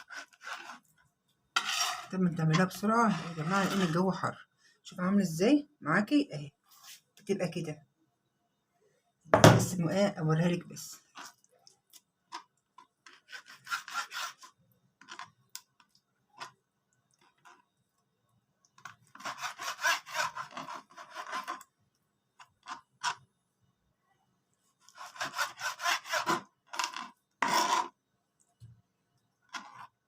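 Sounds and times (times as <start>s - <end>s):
knife sawing through frozen meat: 0.0s - 0.8s, 13.3s - 14.5s, 19.2s - 21.6s, 24.9s - 26.5s.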